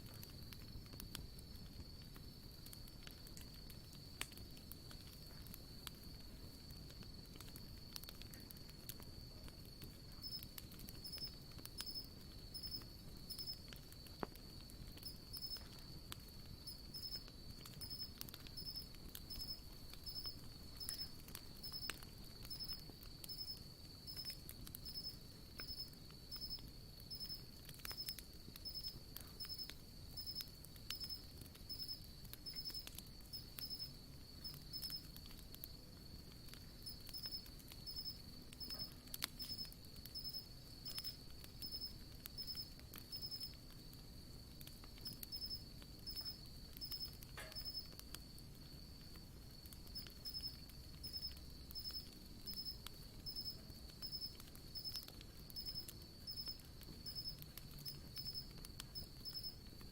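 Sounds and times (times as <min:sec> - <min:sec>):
campfire crackling and popping: 0:00.0 - 0:59.9
insects chirping rhythmically: 0:00.0 - 0:59.9
high insect trill: 0:02.8 - 0:59.9.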